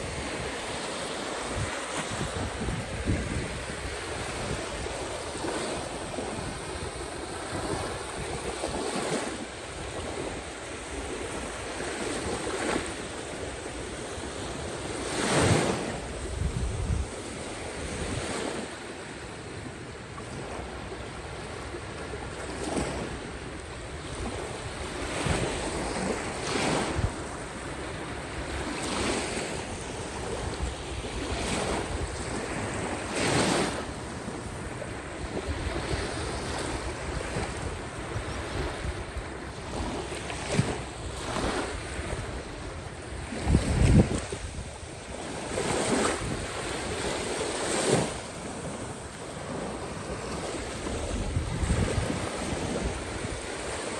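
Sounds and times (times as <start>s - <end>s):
waves washing onto shore: 0.0s - 53.9s
wind buffeting microphone: 0.0s - 53.9s.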